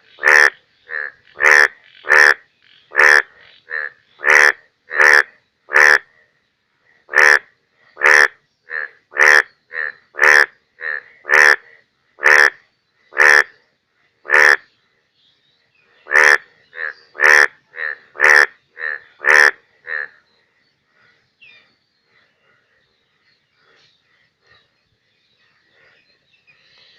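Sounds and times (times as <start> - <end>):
bullfrog croaking: 0.0 - 6.1, 7.1 - 13.6, 14.2 - 14.7, 16.0 - 20.3.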